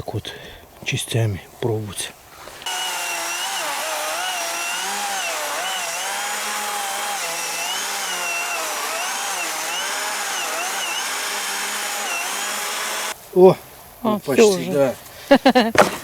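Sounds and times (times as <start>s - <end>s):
chainsaw cutting log: 2.4s - 13.2s.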